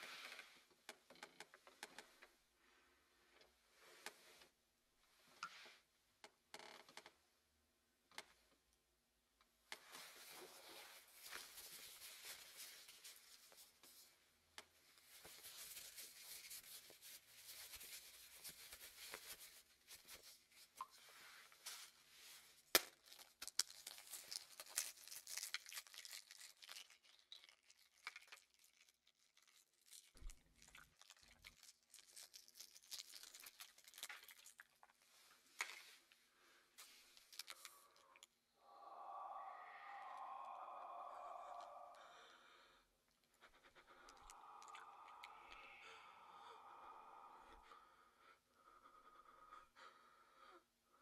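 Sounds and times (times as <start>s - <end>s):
small crackles and clicks: 22.7s - 35.0s.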